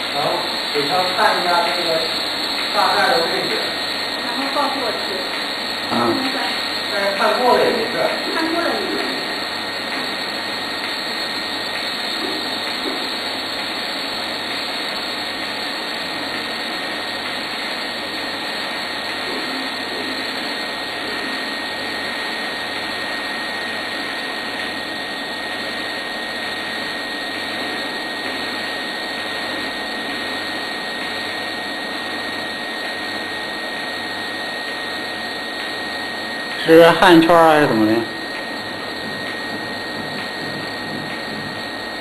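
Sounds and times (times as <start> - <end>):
welding arc hiss: 0.0 - 28.7, 29.5 - 42.0
faint low pulse: 38.9 - 41.7.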